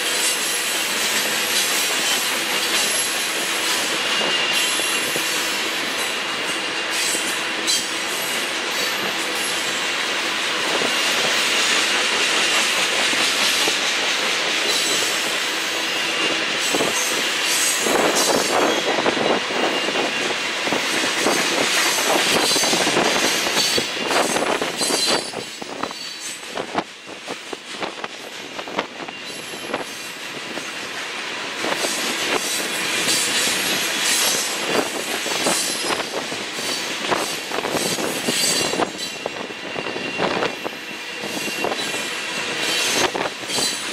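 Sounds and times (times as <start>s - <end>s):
train wheels clicking over rail joints: 0.0s - 43.9s
metallic wheel squeal: 0.2s - 5.4s, 21.9s - 26.4s, 29.0s - 30.1s, 35.4s - 43.9s.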